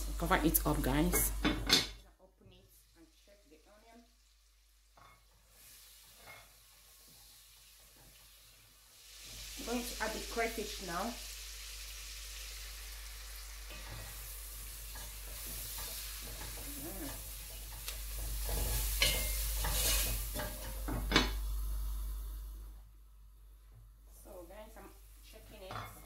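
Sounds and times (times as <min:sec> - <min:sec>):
onions sizzling in hot oil: 0:00.0 - 0:02.0, 0:02.6 - 0:26.0
wooden spoon stirring in pot: 0:13.6 - 0:21.2.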